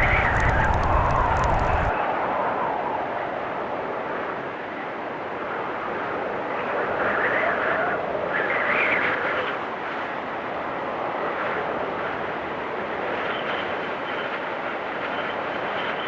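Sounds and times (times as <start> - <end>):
blizzard wind gusting: 0.0 - 1.9.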